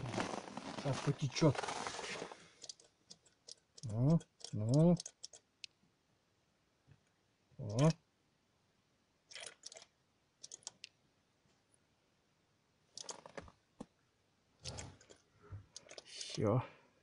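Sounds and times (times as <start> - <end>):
faint clicks and crackles: 12.9 - 13.9.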